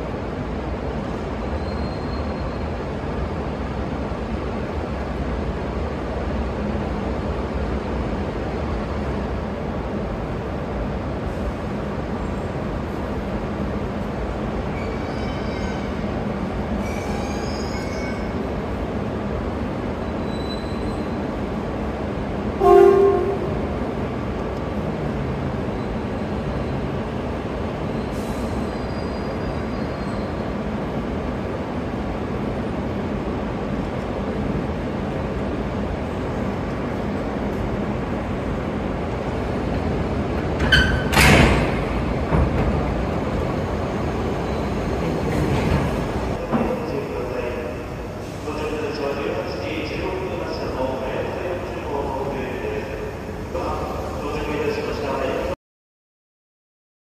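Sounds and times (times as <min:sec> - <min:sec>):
train mechanical hum: 0:00.0 - 0:55.5
faint high wheel squeals: 0:01.5 - 0:02.8, 0:16.8 - 0:18.3, 0:20.0 - 0:21.2, 0:27.9 - 0:30.5
short train horn blast: 0:22.6 - 0:23.8.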